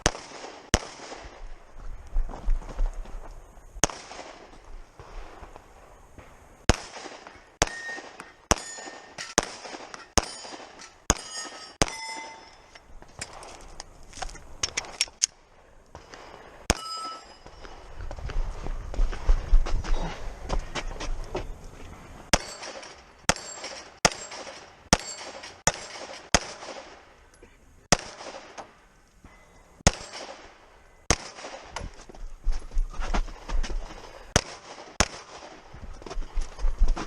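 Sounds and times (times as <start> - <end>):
pistol shots: 0.0 - 1.5, 3.8 - 5.1, 6.7 - 12.6, 22.3 - 27.1, 27.9 - 28.6, 29.8 - 31.8, 34.3 - 35.6
steel targets ringing: 7.6 - 12.8, 16.2 - 17.6, 22.3 - 25.8.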